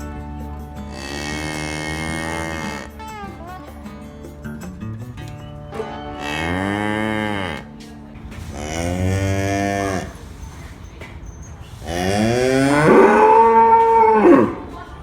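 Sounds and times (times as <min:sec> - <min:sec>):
cow mooing: 0:00.9 - 0:03.0, 0:06.2 - 0:07.8, 0:08.5 - 0:10.2, 0:11.8 - 0:14.8.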